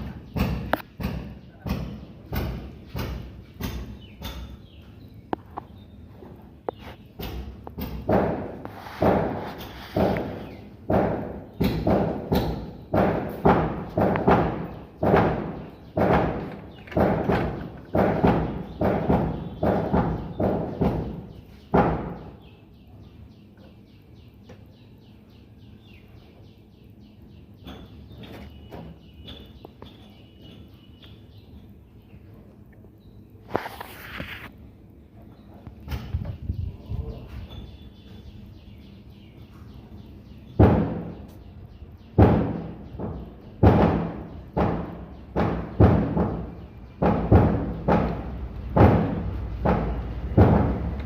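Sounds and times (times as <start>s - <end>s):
loud knocks: 0.0s - 4.6s, 7.2s - 22.4s, 40.6s - 41.3s, 42.1s - 51.0s
small bird chirping: 0.0s - 7.4s, 14.6s - 34.5s, 35.2s - 45.8s.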